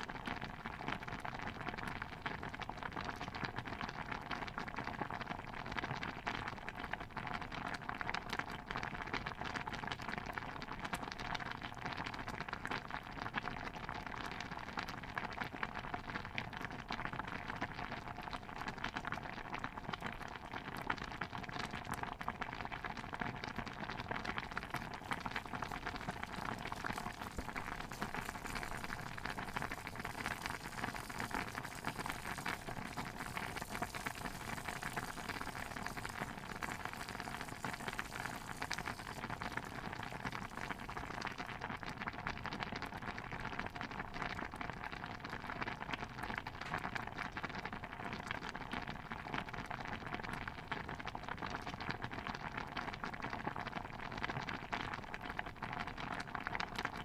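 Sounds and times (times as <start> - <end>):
stew bubbling: 22.8 - 43.6.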